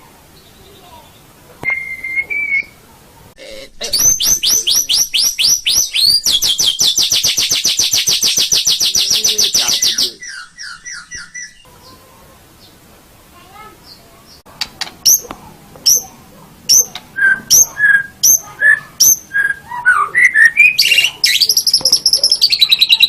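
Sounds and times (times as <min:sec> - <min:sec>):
bird singing: 0:00.4 - 0:02.8, 0:03.7 - 0:12.8, 0:13.8 - 0:23.0.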